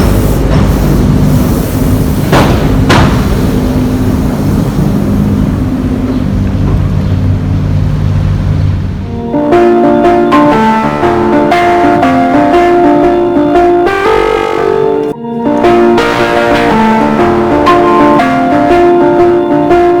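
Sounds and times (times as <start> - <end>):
train wheels clacking: 0.0 - 7.7
electric train rumbling over bridge: 0.0 - 20.0
music: 9.0 - 20.0.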